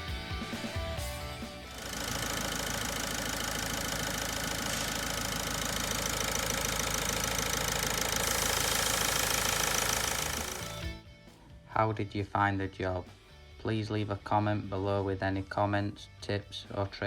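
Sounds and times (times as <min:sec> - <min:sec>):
diesel engine idling: 0:01.7 - 0:10.9.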